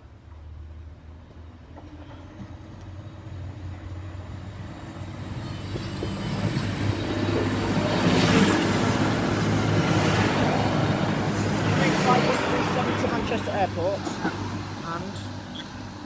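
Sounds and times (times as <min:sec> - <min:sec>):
diesel train approaching: 0:00.0 - 0:16.0.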